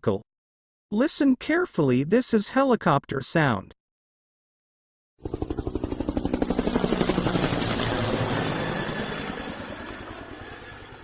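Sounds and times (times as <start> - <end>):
helicopter rotor beating: 5.2 - 11.0.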